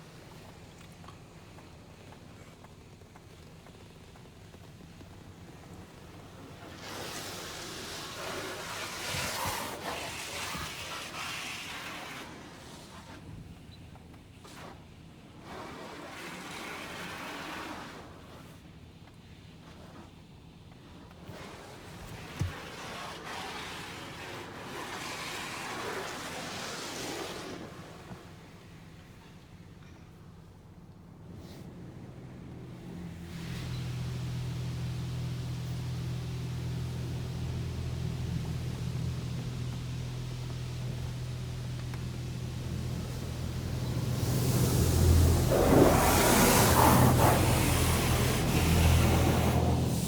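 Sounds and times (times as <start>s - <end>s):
car wash spray hissing: 3.8s - 13.2s, 21.4s - 30.4s, 31.2s - 50.0s.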